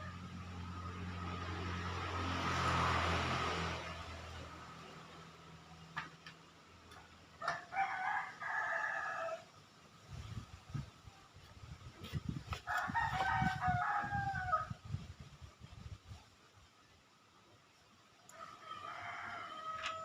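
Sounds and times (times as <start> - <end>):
engine humming low: 0.0 - 7.4
rooster crowing: 7.4 - 9.5, 12.7 - 14.8, 18.3 - 20.0.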